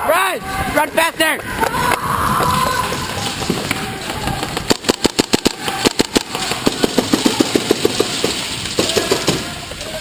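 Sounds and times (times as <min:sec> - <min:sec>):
airsoft guns firing in bursts: 0:04.3 - 0:09.6.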